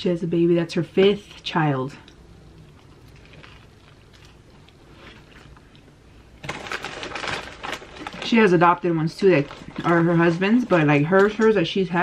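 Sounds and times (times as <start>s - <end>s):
sandwich being chewed: 2.1s - 8.2s.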